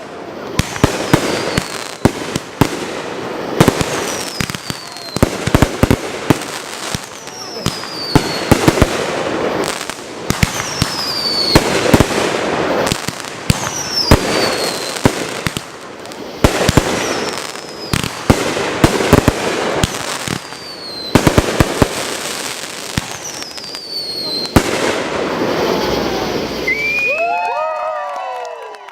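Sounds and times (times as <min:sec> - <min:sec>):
fireworks bangs: 0:00.0 - 0:28.6
fireworks crackle: 0:00.0 - 0:28.6
falling firework whistles: 0:00.5 - 0:02.1, 0:03.5 - 0:08.9, 0:09.5 - 0:12.1, 0:12.8 - 0:15.1, 0:16.4 - 0:18.2, 0:19.1 - 0:27.8.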